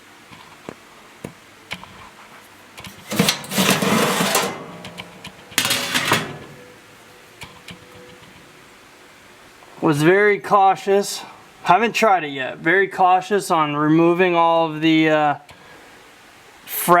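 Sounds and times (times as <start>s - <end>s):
sheet metal rattling and scraping: 2.8s - 6.9s.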